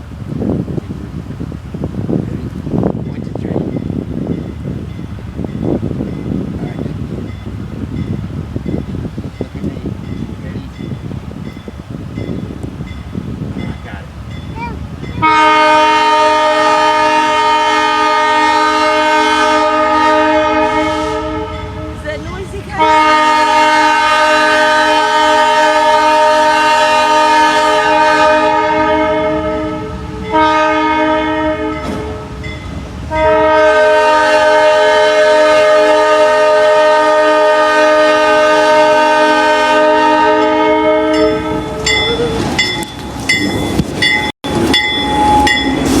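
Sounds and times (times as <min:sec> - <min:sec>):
train air horn blasts: 0:15.2 - 0:22.2, 0:22.8 - 0:32.5, 0:33.1 - 0:42.0, 0:44.5 - 0:46.0
metallic ringing: 0:41.1 - 0:46.0
train wheels clacking: 0:41.2 - 0:46.0.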